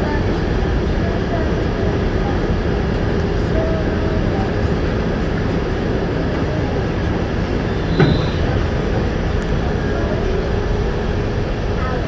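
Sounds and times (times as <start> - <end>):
subway train wheels rumbling: 0.0 - 12.0
high wheel squeal: 7.5 - 9.0
metal clank: 7.9 - 8.7.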